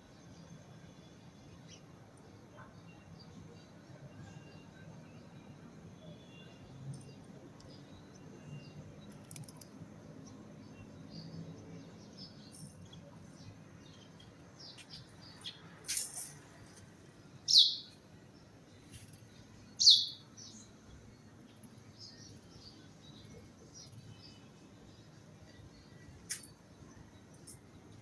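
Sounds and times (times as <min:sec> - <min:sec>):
small birds chirping: 0:06.2 - 0:28.0.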